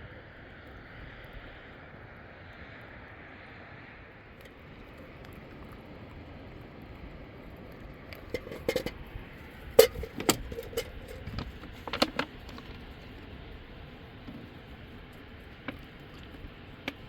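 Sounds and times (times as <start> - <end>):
hard objects clicking and knocking: 8.2 - 9.0, 9.8 - 12.8.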